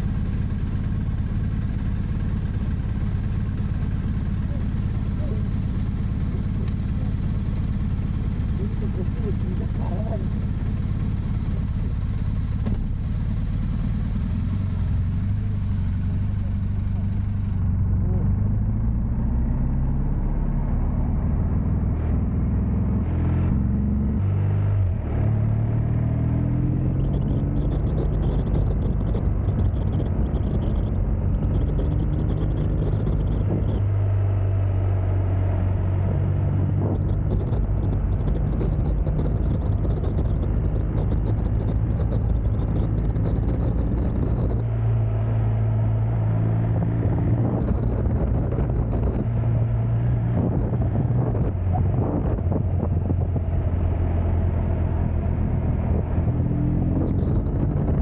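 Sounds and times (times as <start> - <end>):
motorcycle engine: 0.0 - 58.0
wind on microphone: 26.0 - 34.0, 35.6 - 58.0.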